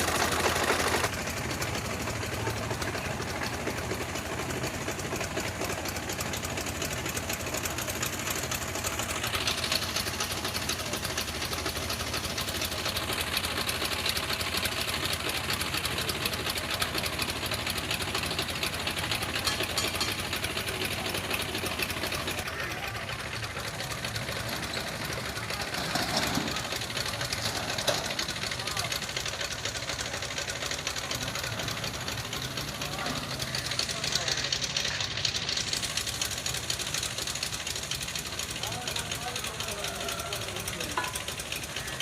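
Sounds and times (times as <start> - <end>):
tractor engine clattering: 0.0 - 42.0.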